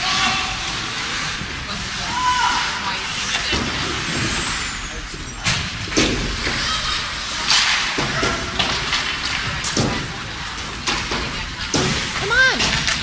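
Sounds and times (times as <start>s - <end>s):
skates scraping ice: 0.0s - 13.0s
spectators chatting: 0.0s - 13.0s
hockey sticks clacking on puck: 5.1s - 13.0s.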